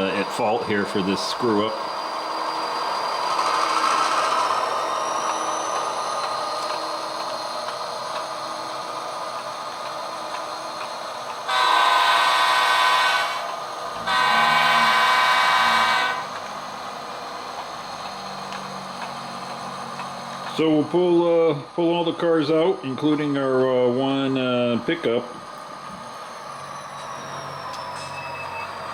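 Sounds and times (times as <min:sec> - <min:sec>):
model locomotive diesel engine sound: 0:00.0 - 0:28.9
locomotive horn blasts: 0:11.5 - 0:16.4.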